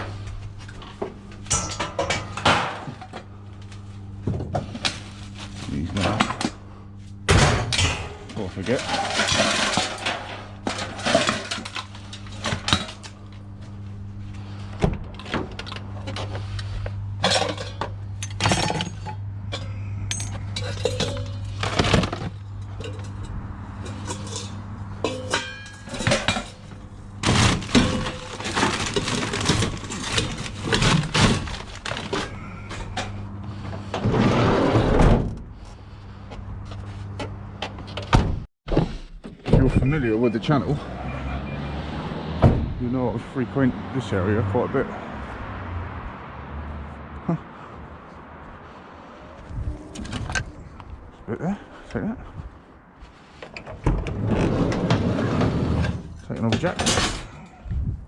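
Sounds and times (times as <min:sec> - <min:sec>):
scrap metal clanking and rattling: 0:00.0 - 0:03.2, 0:07.3 - 0:13.1, 0:14.5 - 0:35.9, 0:53.2 - 0:57.6
steady low hum: 0:00.0 - 0:38.5.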